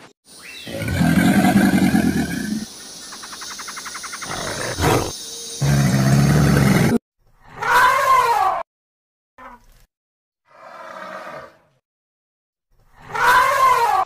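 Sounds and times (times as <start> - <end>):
crocodile growling: 0.7 - 2.6, 4.3 - 7.0.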